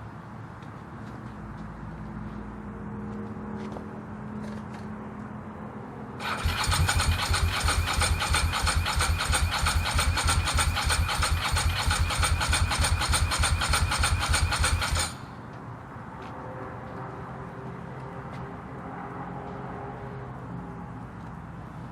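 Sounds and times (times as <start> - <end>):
electric starter cranking engine: 6.2 - 15.4.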